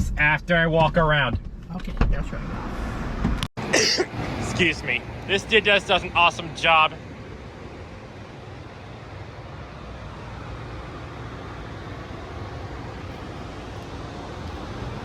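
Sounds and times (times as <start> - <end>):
low mechanical hum: 3.7 - 15.0.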